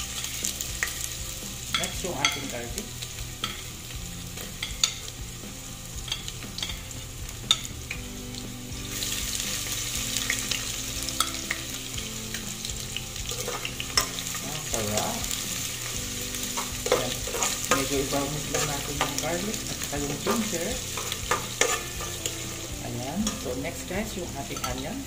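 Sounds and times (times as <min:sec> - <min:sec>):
garlic and ginger sizzling in oil: 0:00.0 - 0:25.0.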